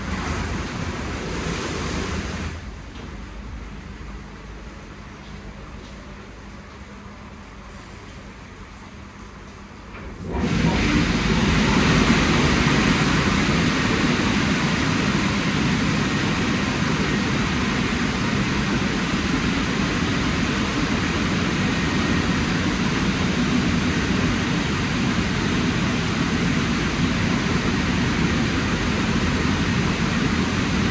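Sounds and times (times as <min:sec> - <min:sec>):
drying blowers rushing air: 0:00.0 - 0:03.7, 0:10.0 - 0:30.9
low fan hum: 0:00.0 - 0:30.9.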